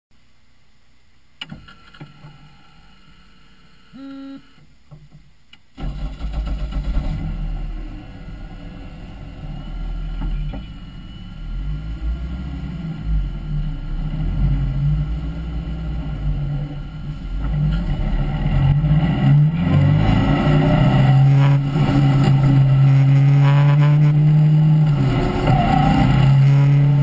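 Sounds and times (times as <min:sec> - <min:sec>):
short beep: 0:03.9 - 0:04.6.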